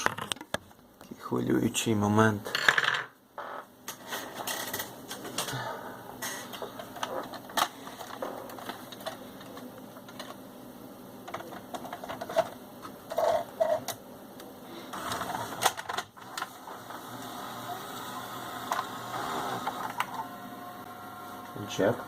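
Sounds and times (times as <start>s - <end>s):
video recorder mechanism whirring: 11.3s - 22.0s.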